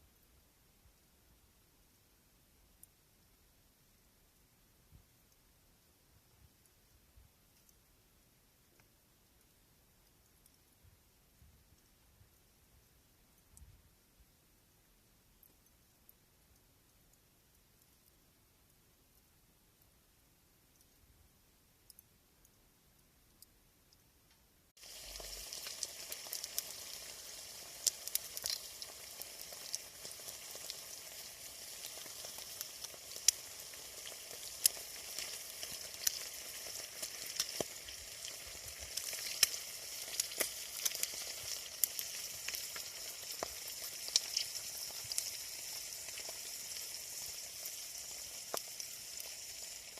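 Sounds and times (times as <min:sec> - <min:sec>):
campfire crackling and popping: 0:24.8 - 0:49.9.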